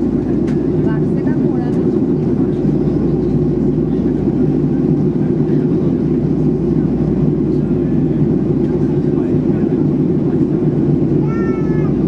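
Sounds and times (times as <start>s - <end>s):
airplane cabin drone: 0.0s - 12.0s.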